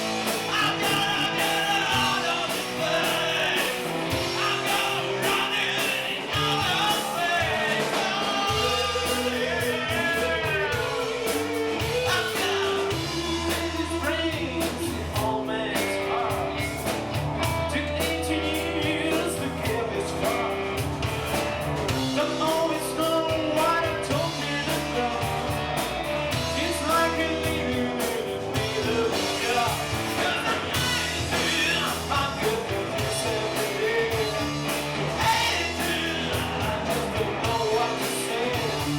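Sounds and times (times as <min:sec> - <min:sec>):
rock guitar and bass: 0:00.0 - 0:38.9
person singing: 0:00.2 - 0:16.6, 0:17.5 - 0:20.8, 0:22.0 - 0:25.5, 0:26.3 - 0:38.9.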